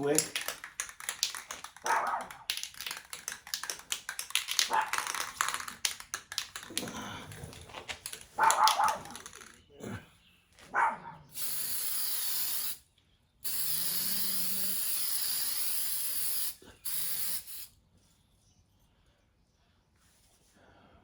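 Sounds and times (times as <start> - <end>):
spray paint can hissing: 0.0 - 6.9, 8.0 - 9.5, 11.3 - 12.8, 13.4 - 17.7.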